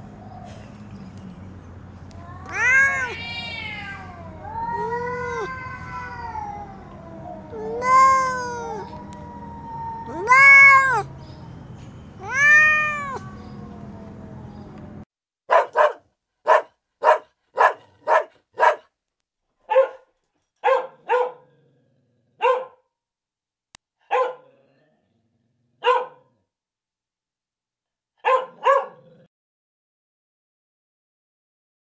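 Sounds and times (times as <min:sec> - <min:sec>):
cat meowing: 0:02.1 - 0:11.2, 0:12.2 - 0:14.8
small dog barking: 0:15.5 - 0:18.9, 0:19.7 - 0:21.5, 0:22.4 - 0:22.8, 0:24.0 - 0:24.5, 0:25.8 - 0:26.3, 0:28.2 - 0:29.1.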